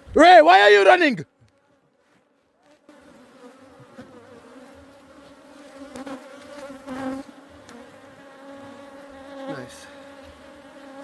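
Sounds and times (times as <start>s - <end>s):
bees buzzing: 2.9s - 11.0s.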